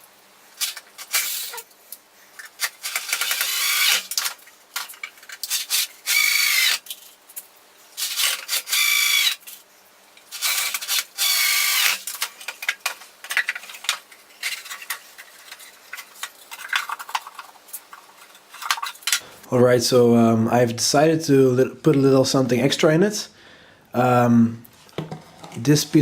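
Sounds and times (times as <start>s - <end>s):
power drill driving screws: 0.6s - 1.6s, 2.6s - 4.3s, 5.5s - 6.8s, 8.0s - 9.4s, 10.3s - 12.1s.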